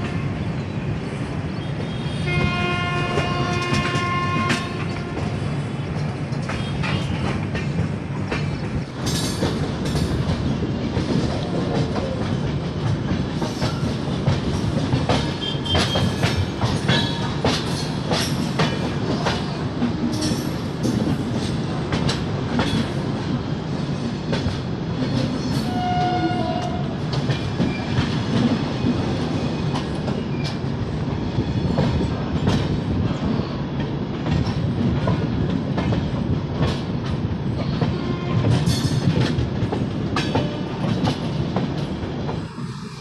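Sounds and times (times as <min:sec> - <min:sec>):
train wheels rumbling on rail: 0:00.0 - 0:43.0
wheels clicking over rail joints: 0:31.6 - 0:42.4.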